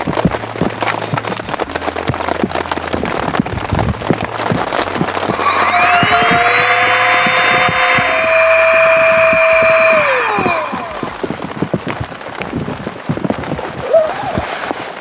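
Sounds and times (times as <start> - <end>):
small electric motor whining: 5.2 - 11.4.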